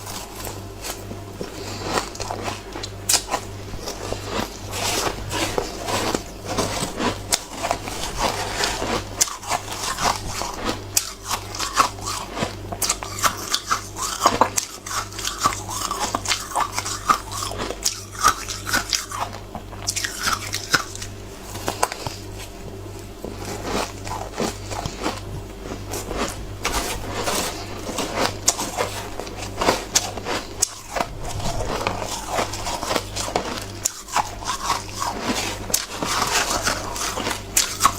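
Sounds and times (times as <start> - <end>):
crunching ice: 0.0 - 37.9
steady low hum: 0.0 - 37.9.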